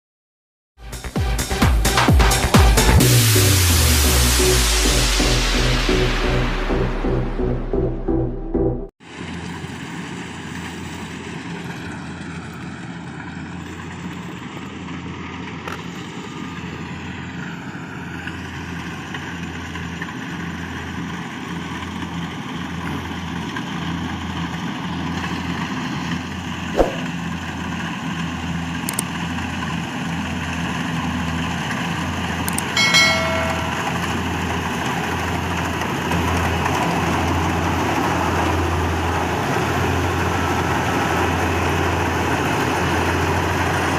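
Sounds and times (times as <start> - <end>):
combine harvester engine drone: 9.1 - 32.6, 34.0 - 43.9
short pitched blip: 26.8 - 27.1, 32.8 - 34.1.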